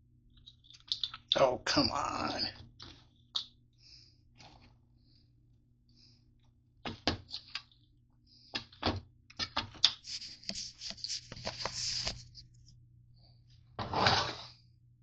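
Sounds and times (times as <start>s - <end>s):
steady low hum: 0.0s - 9.4s, 10.0s - 13.9s
rustling: 9.9s - 12.8s.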